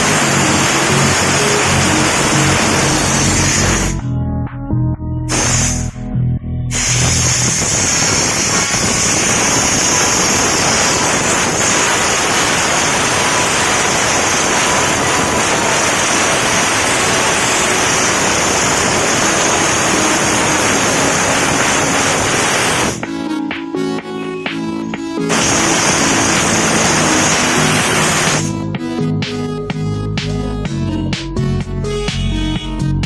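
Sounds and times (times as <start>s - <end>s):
steam jet hissing: 0.0s - 4.0s, 5.3s - 5.9s, 6.7s - 23.0s, 25.2s - 28.5s
music: 0.0s - 33.0s.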